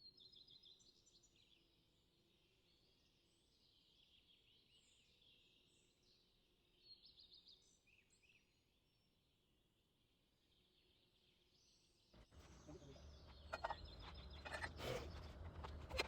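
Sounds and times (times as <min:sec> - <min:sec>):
small birds chirping and trilling: 0:12.2 - 0:16.0.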